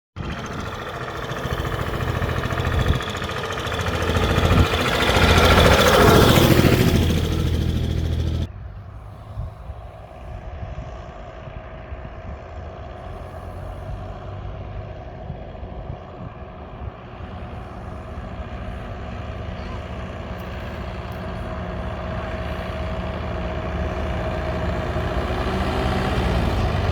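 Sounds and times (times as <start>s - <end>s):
tractor engines running: 0.2s - 26.9s.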